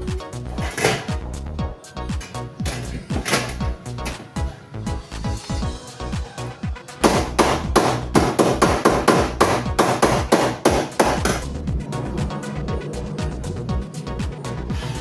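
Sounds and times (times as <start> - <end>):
background music: 0.0 - 15.0
rapid hammer blows: 6.8 - 15.0.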